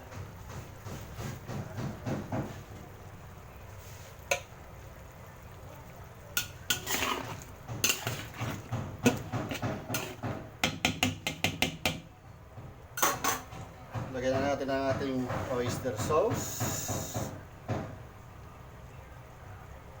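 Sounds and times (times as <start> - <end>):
cookware and utensils clattering: 6.4 - 12.0, 13.0 - 17.9.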